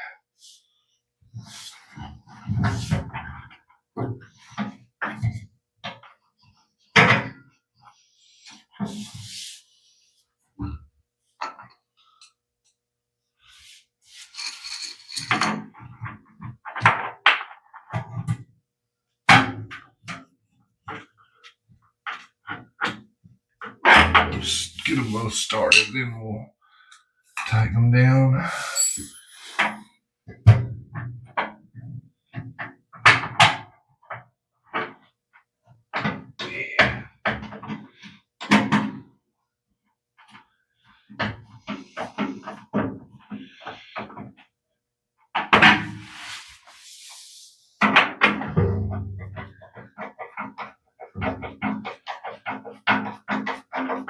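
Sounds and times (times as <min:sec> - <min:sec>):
metal scraping: 0:14.2 - 0:15.5
metal parts knocking and clanking: 0:14.3 - 0:16.0.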